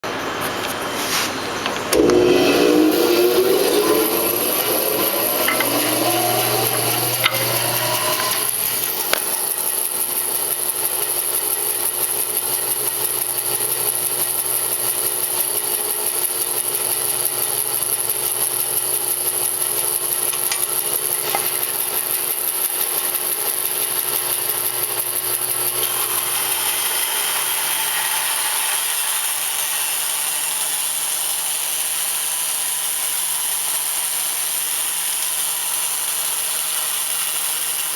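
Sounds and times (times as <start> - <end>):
saw cutting wood: 0.5 - 37.9
bandsaw whine: 1.2 - 11.2, 16.5 - 31.8.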